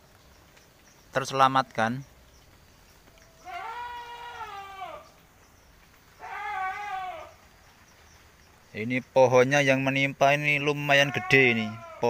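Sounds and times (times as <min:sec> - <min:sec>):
farm animal calling: 0:03.1 - 0:05.2, 0:06.2 - 0:07.4, 0:10.9 - 0:12.0.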